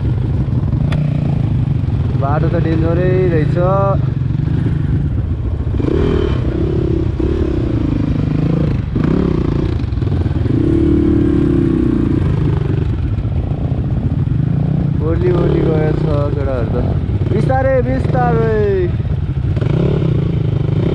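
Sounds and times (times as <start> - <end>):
dirt bike engine revving: 0.0 - 20.9.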